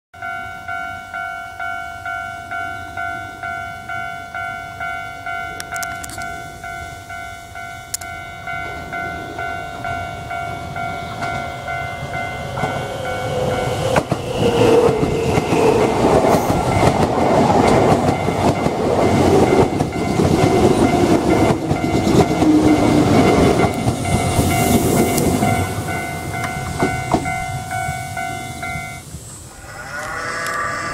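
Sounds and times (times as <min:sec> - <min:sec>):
electric train passing: 0:00.2 - 0:30.9
wheels clacking over rail joints: 0:07.9 - 0:29.4
level crossing bell ringing: 0:19.4 - 0:29.0.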